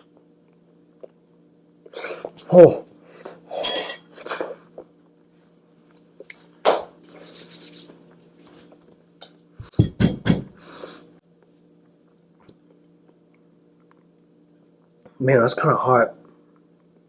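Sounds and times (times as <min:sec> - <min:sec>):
dishes clinking: 0:03.6 - 0:04.2.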